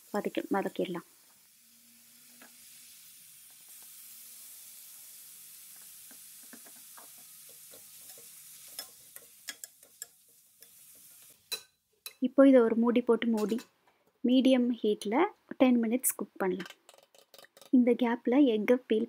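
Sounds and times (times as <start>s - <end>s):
food sizzling in hot oil: 0.0s - 13.7s, 16.8s - 17.8s
metal spoon scraping and tapping pan: 5.8s - 12.2s, 13.4s - 13.7s, 16.6s - 17.8s.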